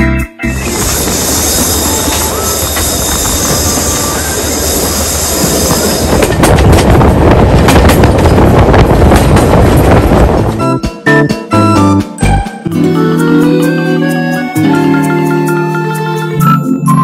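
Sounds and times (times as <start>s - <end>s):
music: 0.0s - 5.0s, 9.6s - 17.0s
train carriage rushing: 0.4s - 12.6s
wheels clacking over rails: 0.6s - 10.6s.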